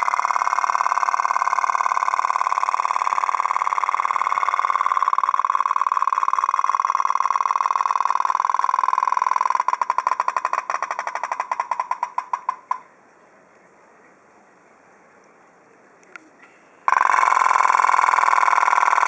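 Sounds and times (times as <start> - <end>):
toy steam engine popping: 0.0 - 12.8, 16.9 - 19.0
faint click: 16.0 - 16.6.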